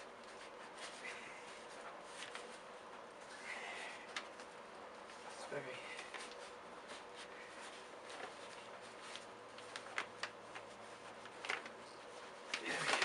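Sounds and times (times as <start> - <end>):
vacuum cleaner bag rustling: 8.0 - 13.0.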